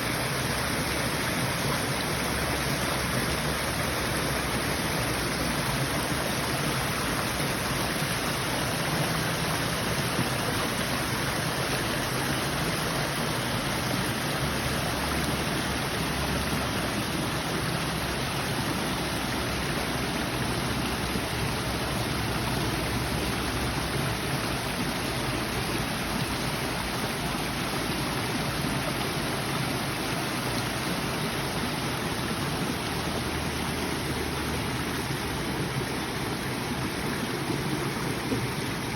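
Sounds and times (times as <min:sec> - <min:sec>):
small waterfall splashing: 0:00.0 - 0:38.9.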